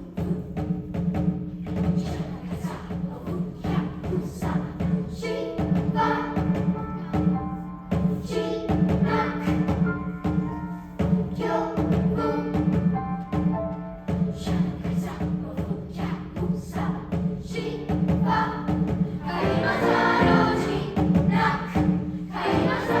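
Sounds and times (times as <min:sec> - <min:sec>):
sharp percussive beats: 0:00.0 - 0:23.0
youth choir singing: 0:02.0 - 0:07.3, 0:08.2 - 0:09.9, 0:11.1 - 0:12.6, 0:14.4 - 0:23.0.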